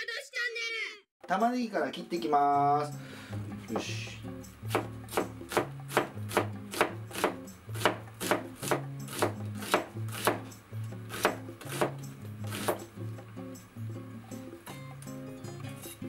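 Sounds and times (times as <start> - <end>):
knife slicing onion on board: 4.7 - 13.0.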